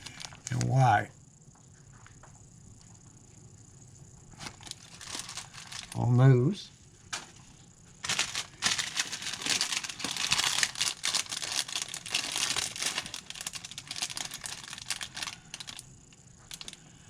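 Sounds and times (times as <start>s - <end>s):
plastic packaging crinkling: 0.0s - 0.7s, 4.4s - 6.1s, 8.0s - 16.8s.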